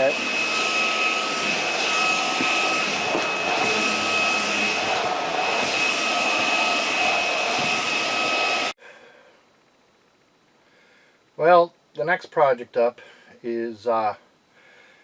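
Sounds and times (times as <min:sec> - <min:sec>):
stick vacuum whining: 0:00.0 - 0:08.8.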